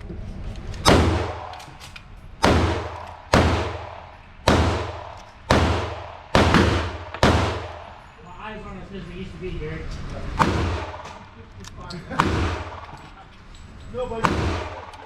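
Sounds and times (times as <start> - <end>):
gunshots with echoing tail: 0.8 - 1.8, 2.4 - 8.1, 10.4 - 11.4, 12.1 - 13.2, 14.2 - 15.0.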